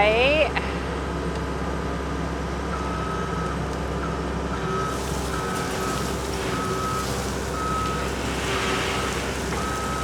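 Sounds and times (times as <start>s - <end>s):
diesel engine running: 3.6s - 10.0s
backup alarm beeping: 4.7s - 10.0s.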